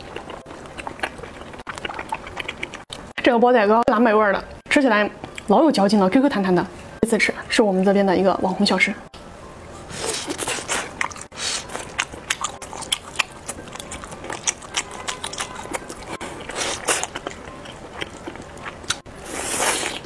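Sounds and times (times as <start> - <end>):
wet chewing clicks and smacks: 0.0 - 3.1, 10.4 - 19.1.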